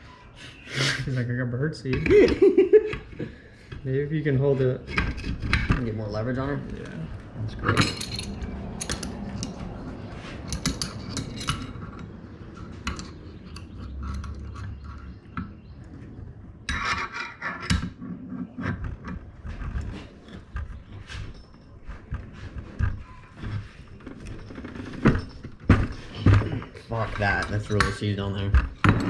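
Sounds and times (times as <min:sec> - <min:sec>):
metal tools clinking and scraping: 0:03.7 - 0:15.8, 0:16.7 - 0:29.0
metallic rattling: 0:04.7 - 0:15.8.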